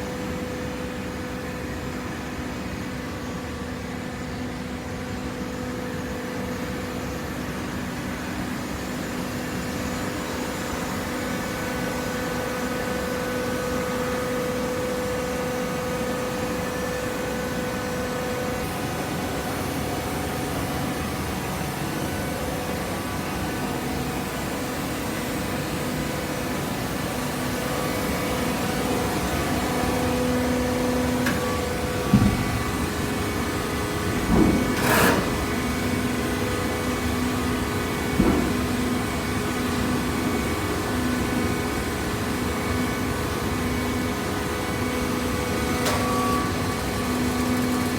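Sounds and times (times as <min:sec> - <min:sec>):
baler pump motor humming: 0:04.1 - 0:47.9.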